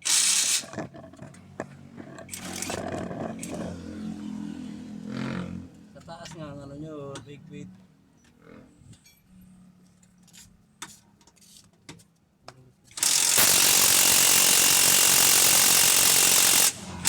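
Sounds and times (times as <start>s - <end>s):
power tool whining: 0.0s - 3.9s, 13.0s - 17.0s.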